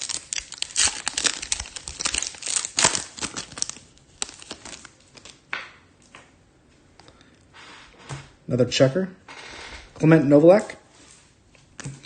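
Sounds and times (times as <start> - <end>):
wrappers crinkling and tearing: 0.0 - 5.4.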